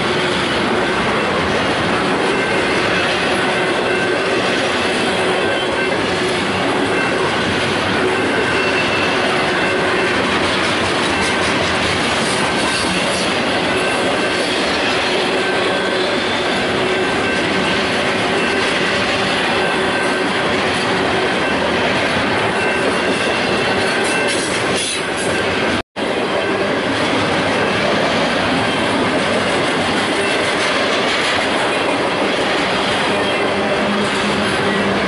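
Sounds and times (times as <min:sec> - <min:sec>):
train wheels rumbling on rail: 0:00.0 - 0:35.0
wheel squeal: 0:08.1 - 0:10.2.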